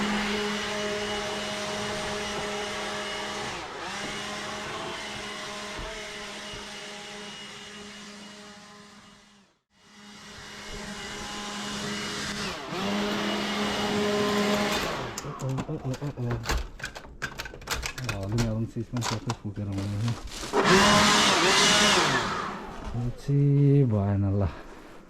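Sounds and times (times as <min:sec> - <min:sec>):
electric snow blower motor whine: 0:00.0 - 0:15.5, 0:20.3 - 0:23.2.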